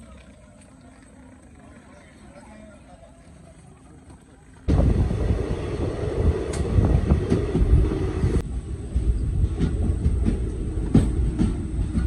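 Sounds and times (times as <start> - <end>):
train wheels rumbling on rails: 4.1 - 12.0
rail joint clicks: 6.2 - 12.0.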